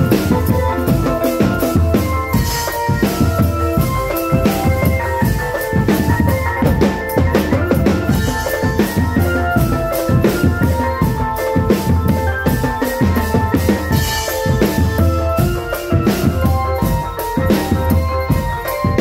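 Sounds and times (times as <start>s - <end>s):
drum band music: 0.0s - 19.0s.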